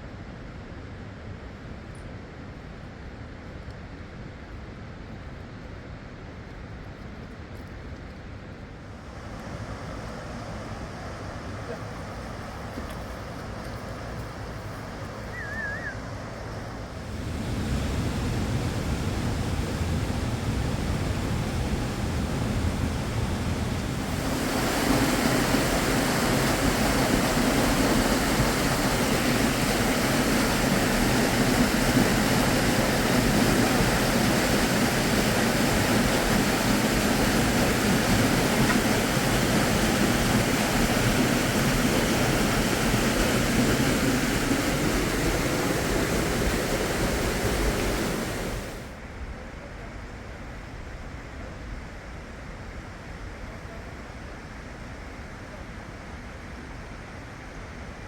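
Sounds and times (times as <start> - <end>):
river water rushing: 9.0 - 49.0.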